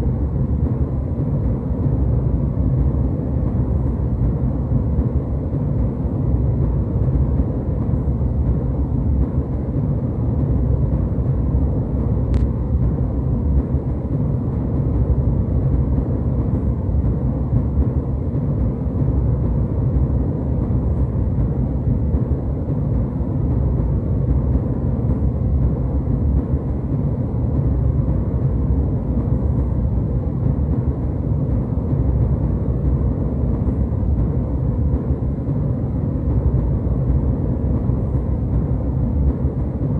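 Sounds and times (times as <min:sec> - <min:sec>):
jet airliner cabin rumble: 0:00.0 - 0:39.9.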